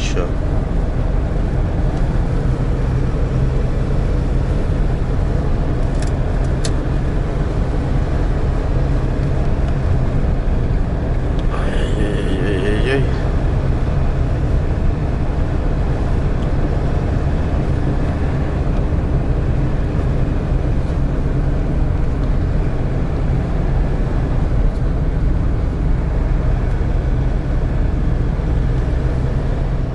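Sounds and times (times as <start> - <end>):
road and wind noise: 0.0 - 29.9
van engine drone: 0.0 - 29.9.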